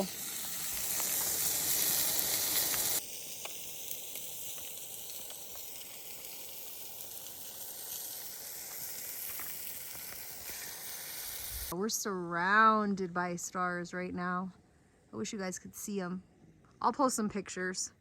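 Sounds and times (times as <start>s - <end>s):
skewers sizzling: 0.0s - 11.8s
steady hiss: 0.0s - 11.8s.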